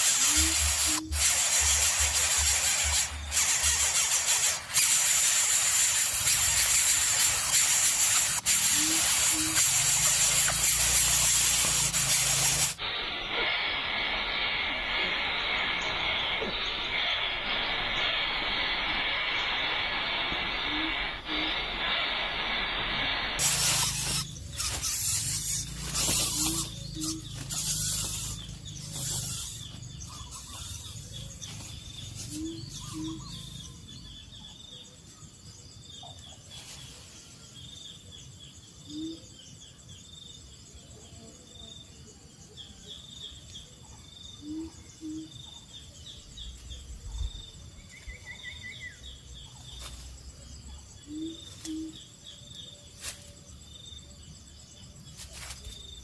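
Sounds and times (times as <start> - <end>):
birds chirping: 0.0 - 40.4, 42.6 - 56.0
loud rustling noise: 21.3 - 29.8.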